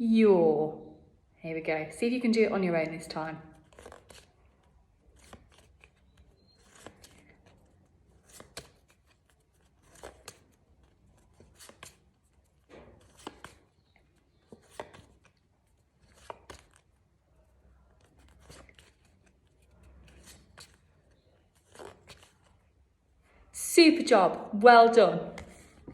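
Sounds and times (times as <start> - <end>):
paper flashcards rustling and flipping: 3.5 - 23.4, 25.3 - 25.9.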